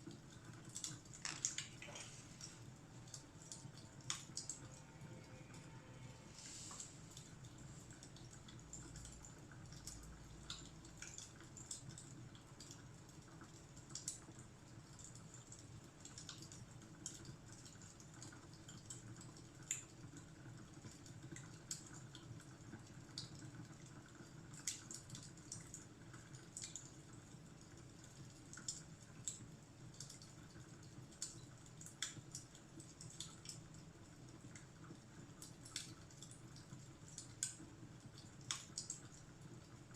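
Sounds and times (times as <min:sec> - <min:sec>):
wood fire crackling and popping: 0:00.1 - 0:04.6, 0:34.5 - 0:39.2
low steady rumble: 0:04.0 - 0:09.0.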